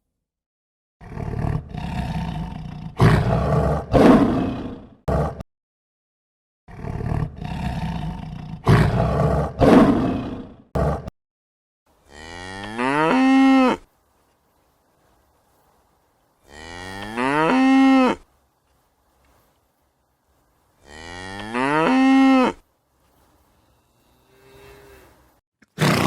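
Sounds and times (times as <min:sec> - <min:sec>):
cow mooing: 0:12.1 - 0:13.8, 0:16.4 - 0:18.2, 0:20.8 - 0:22.6, 0:23.7 - 0:25.2.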